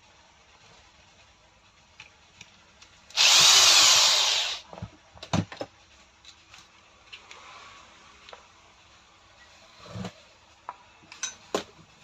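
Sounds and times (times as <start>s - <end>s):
power tool motor whine: 3.2s - 4.6s.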